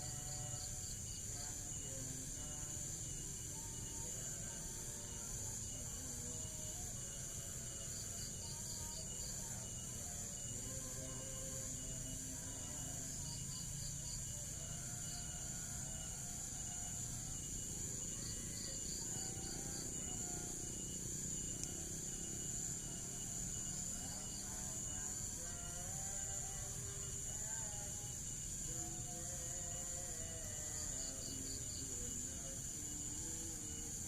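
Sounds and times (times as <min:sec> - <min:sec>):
faint music: 0:00.0 - 0:34.0
high-pitched insect drone: 0:00.0 - 0:34.0.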